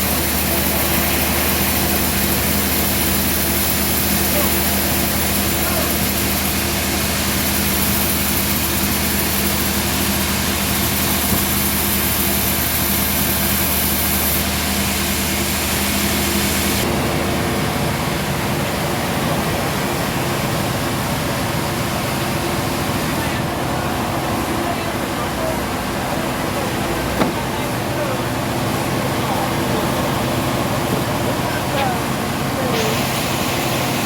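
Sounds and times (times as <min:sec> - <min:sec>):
sawmill machinery humming: 0:00.0 - 0:34.0
high hiss: 0:29.5 - 0:34.0.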